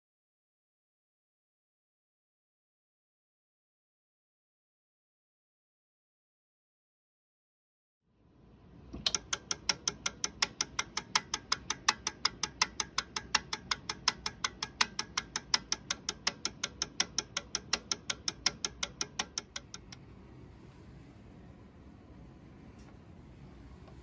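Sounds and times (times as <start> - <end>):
relays clicking rapidly: 9.0 - 20.0.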